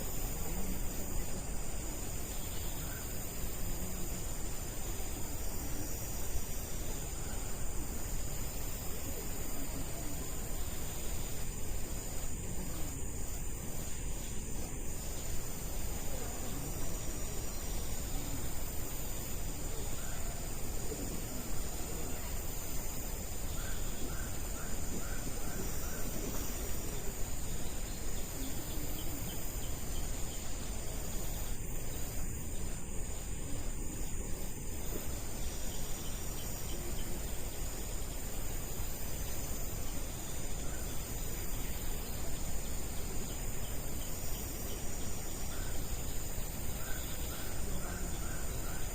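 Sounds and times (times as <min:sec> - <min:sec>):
background hiss: 0:00.0 - 0:48.9
crickets shrilling: 0:00.0 - 0:48.9.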